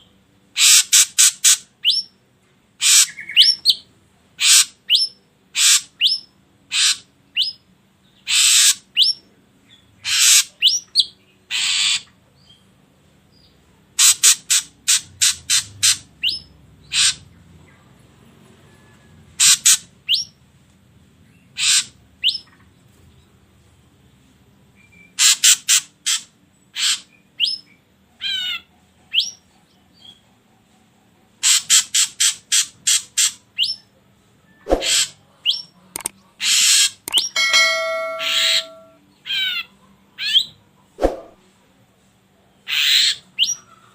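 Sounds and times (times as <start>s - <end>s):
bird calling sharp high notes: 37.1s - 39.0s
trilled bird note: 37.1s - 39.0s.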